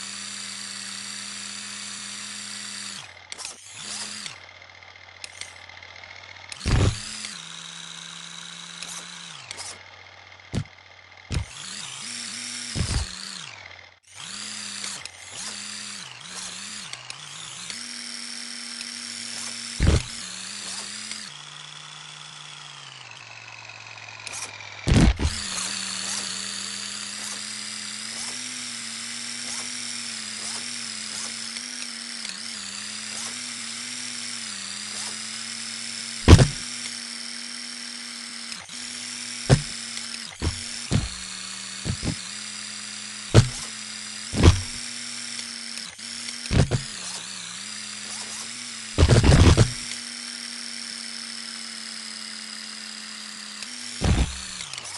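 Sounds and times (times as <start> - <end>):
electric motor whining: 0.0 - 54.9
sharp knocks: 36.3 - 36.6, 43.4 - 43.6, 44.4 - 44.8.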